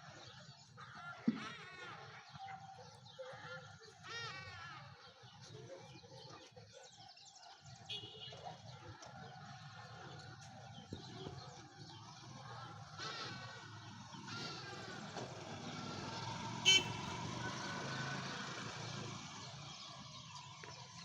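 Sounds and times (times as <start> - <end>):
birds chirping and singing: 9.0 - 21.0.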